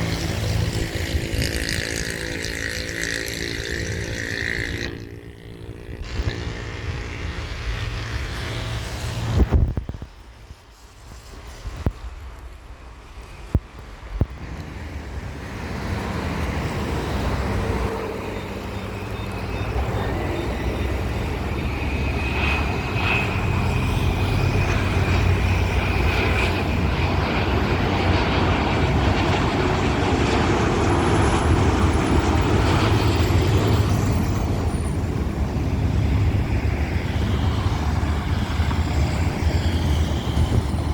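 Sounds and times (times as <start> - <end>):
road traffic: 0.0 - 11.3, 13.7 - 40.9
faint engine whine: 0.0 - 11.6, 12.2 - 40.9
jet noise rush: 14.3 - 40.9.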